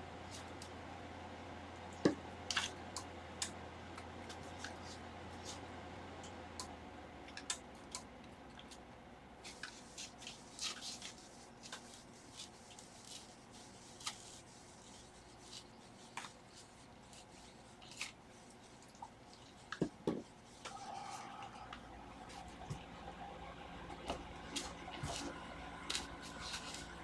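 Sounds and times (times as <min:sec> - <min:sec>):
soft rubbing of adhesive: 0:09.4 - 0:22.7, 0:24.0 - 0:27.0.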